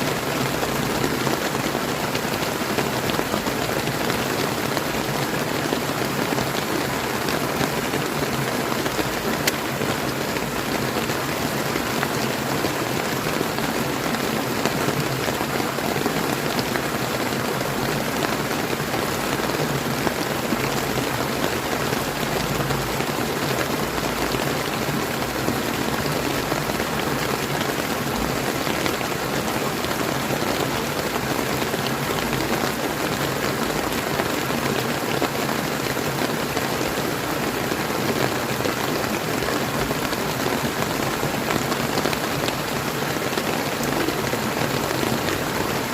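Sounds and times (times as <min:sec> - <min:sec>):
rain falling: 0:00.0 - 0:45.9
river flowing: 0:00.0 - 0:45.9.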